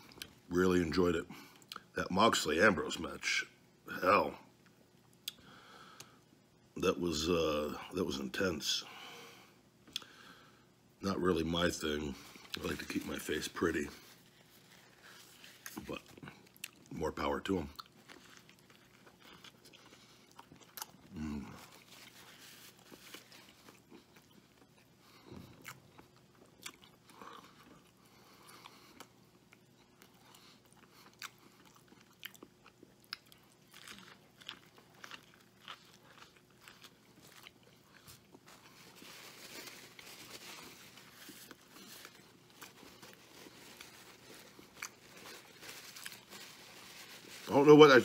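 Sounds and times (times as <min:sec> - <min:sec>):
man chewing a burger: 0:12.2 - 0:47.6.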